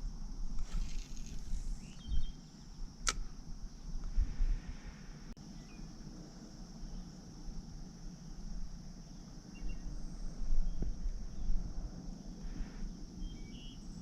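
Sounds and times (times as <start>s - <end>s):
bird chirps: 1.8s - 2.8s, 13.2s - 14.0s
click: 3.0s - 3.2s
high-pitched insect drone: 5.4s - 14.0s.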